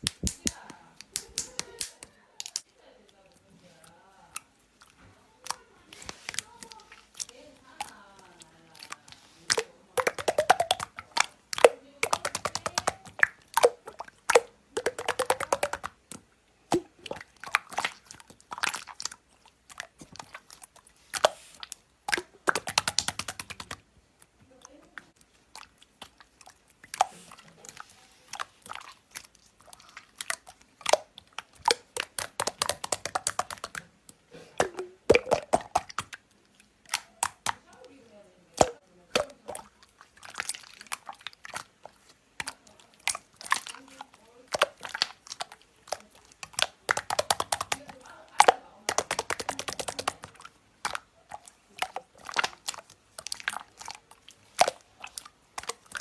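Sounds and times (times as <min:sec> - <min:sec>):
crunchy chewing: 0:39.2 - 0:56.0.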